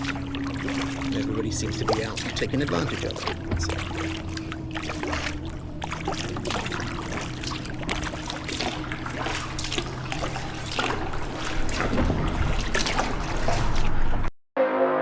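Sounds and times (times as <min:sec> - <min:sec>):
paddle water dripping and splashing: 0:00.0 - 0:14.3
music: 0:14.6 - 0:15.0.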